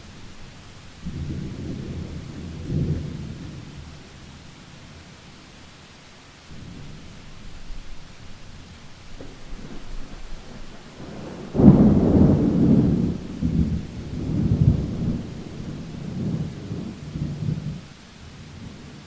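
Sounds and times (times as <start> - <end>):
steady rain: 0.0 - 19.0
thunder rumbling: 1.0 - 4.2, 6.5 - 17.9.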